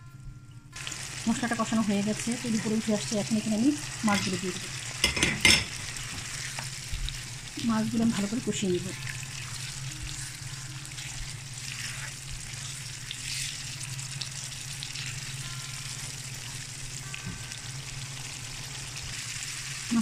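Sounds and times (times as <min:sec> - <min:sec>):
steady low hum: 0:00.0 - 0:20.0
fish sizzling in a frying pan: 0:00.8 - 0:20.0
spatula stirring: 0:09.0 - 0:13.6.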